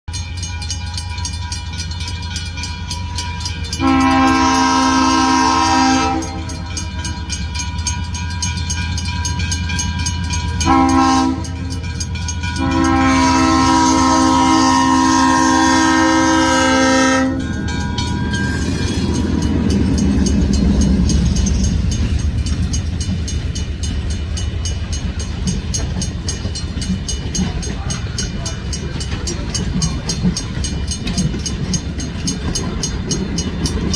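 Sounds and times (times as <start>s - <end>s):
train rumbling over rails: 0.1s - 33.9s
train horn blasts: 3.7s - 6.9s, 10.6s - 11.8s, 12.6s - 17.8s.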